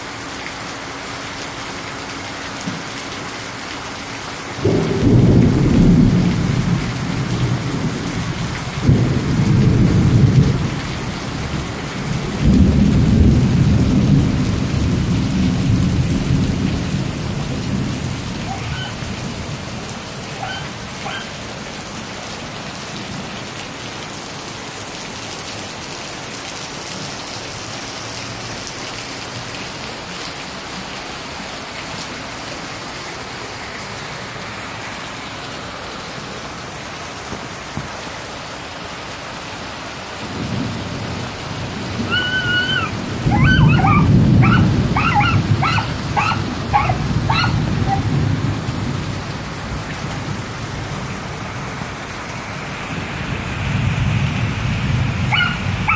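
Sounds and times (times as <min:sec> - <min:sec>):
heavy rain on roofs: 0:00.0 - 0:55.9
thunder rumble: 0:04.6 - 0:19.8, 0:40.2 - 0:51.1
animal short high calls: 0:18.4 - 0:19.0, 0:20.4 - 0:21.4, 0:42.1 - 0:48.1, 0:55.3 - 0:55.9.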